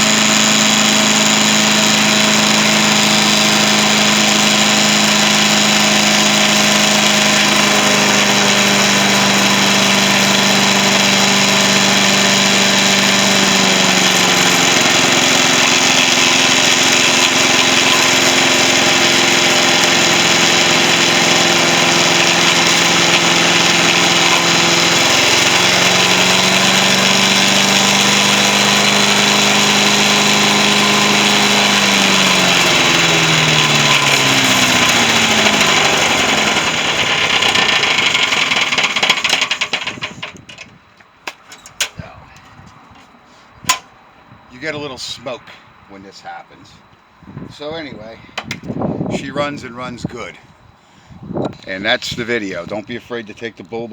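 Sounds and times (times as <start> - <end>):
chipper-shredder engine running: 0.0 - 40.6.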